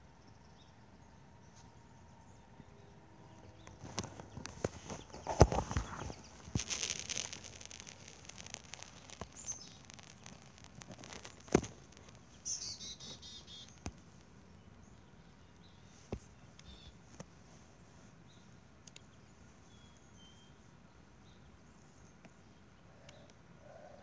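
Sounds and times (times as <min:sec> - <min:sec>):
rapid high bird chirps: 0:01.5 - 0:17.0
sharp clicks and knocks: 0:03.6 - 0:12.4.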